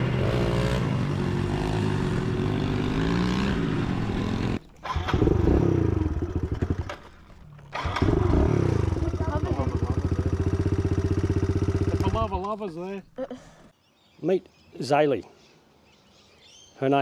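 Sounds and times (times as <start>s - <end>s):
motorcycle engines revving: 0.0s - 7.0s, 7.7s - 12.6s.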